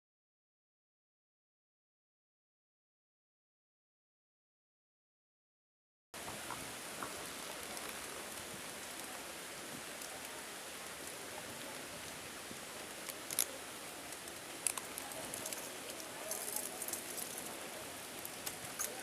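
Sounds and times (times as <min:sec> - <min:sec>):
rain falling: 0:06.2 - 0:19.0.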